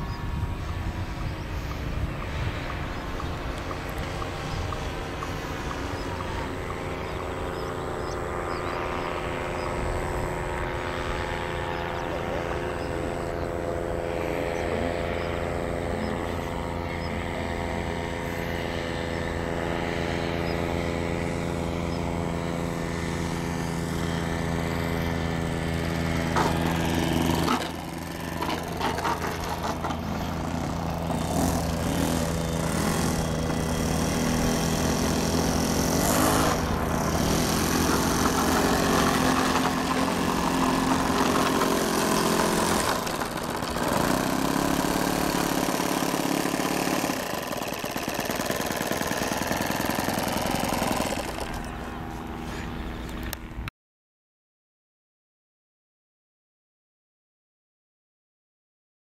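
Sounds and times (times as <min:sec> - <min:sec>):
model airplane engine running: 0:00.0 - 0:53.7.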